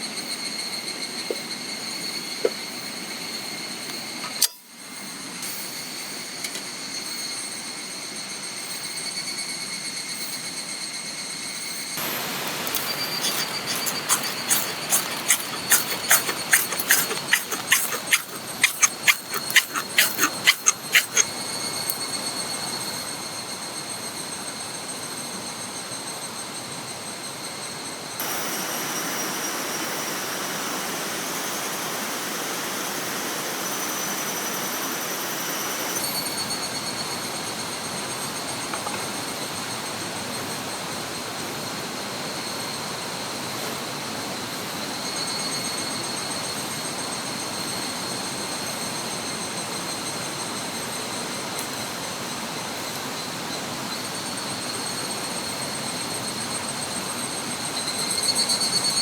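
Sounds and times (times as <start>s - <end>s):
high insect calls: 12.0s - 22.0s.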